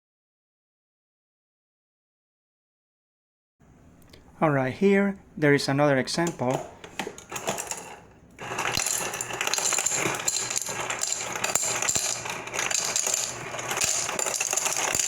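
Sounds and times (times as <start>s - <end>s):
small hard objects clattering: 7.1s - 15.0s.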